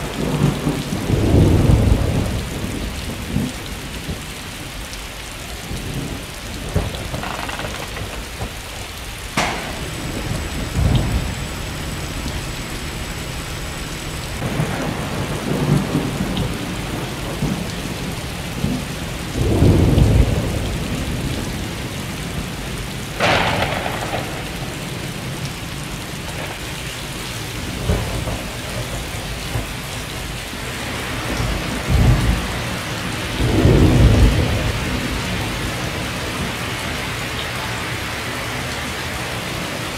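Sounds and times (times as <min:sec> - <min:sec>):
deep thunder rumbles: 0:00.0 - 0:37.2
steady rain: 0:00.0 - 0:39.9
sharp thunder crack: 0:05.9 - 0:17.9, 0:23.2 - 0:25.4.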